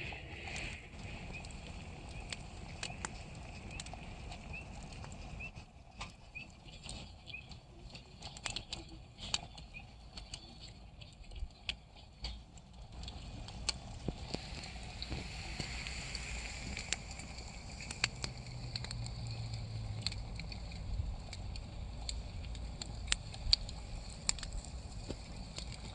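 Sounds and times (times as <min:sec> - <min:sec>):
wood fire crackling and popping: 0:00.0 - 0:25.9
soft hiss: 0:13.1 - 0:25.9.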